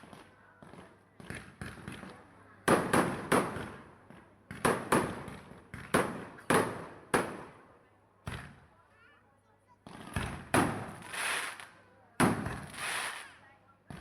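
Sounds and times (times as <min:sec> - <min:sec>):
fireworks bangs echoing: 0:00.0 - 0:07.6, 0:09.8 - 0:11.6, 0:12.2 - 0:14.0.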